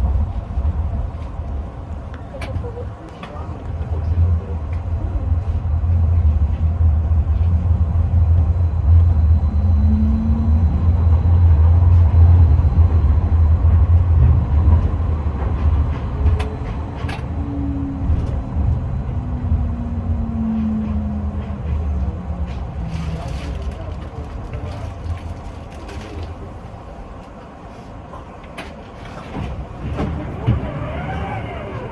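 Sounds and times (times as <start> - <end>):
tram rumbling along track: 0.0 - 31.9
gliding motor tones: 30.1 - 31.9.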